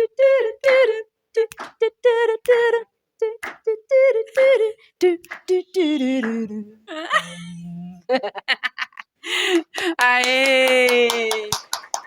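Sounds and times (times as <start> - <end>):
woman singing a cappella: 0.0 - 8.1.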